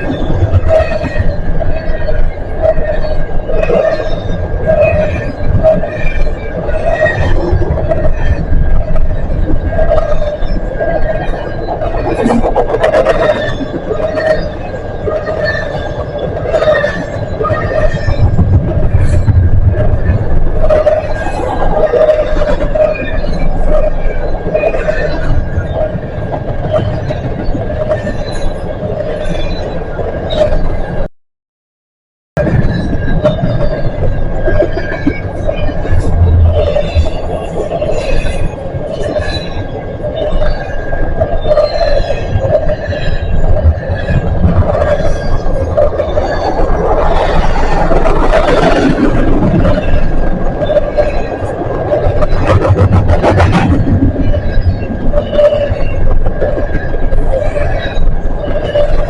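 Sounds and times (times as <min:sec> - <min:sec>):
faint high metallic squeals: 0:00.0 - 0:31.1, 0:32.4 - 0:59.0
steel wheels rumbling on rails: 0:00.0 - 0:31.1, 0:32.4 - 0:59.0.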